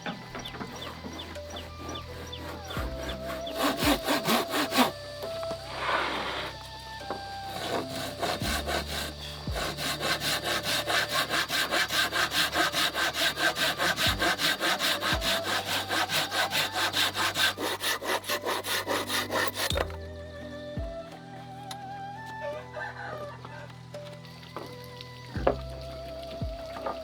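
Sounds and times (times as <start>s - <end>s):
hand saw cutting wood: 0.0s - 20.0s.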